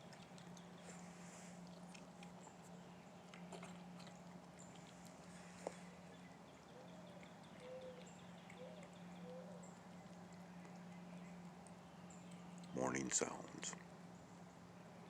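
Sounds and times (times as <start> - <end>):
steady low hum: 0.0 - 15.0
dove cooing: 6.8 - 8.0, 8.6 - 9.7.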